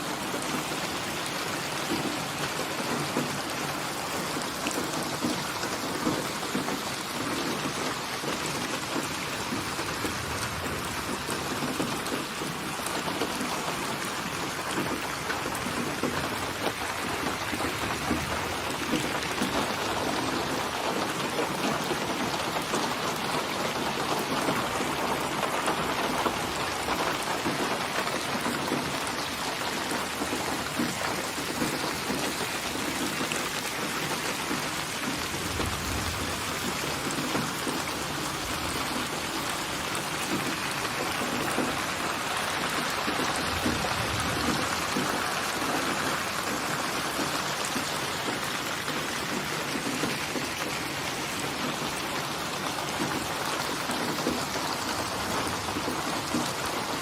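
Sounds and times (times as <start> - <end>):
steady rain patter: 0.0 - 57.0
distant thunder rumble: 34.5 - 46.7.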